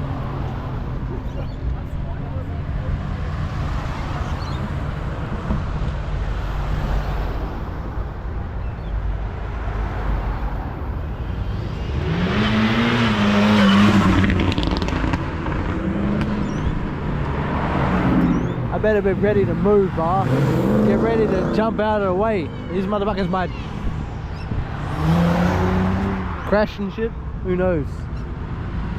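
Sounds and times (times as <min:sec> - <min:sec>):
car engines rumbling: 0:00.0 - 0:28.9
car revving and driving past: 0:09.4 - 0:22.6, 0:23.2 - 0:26.5.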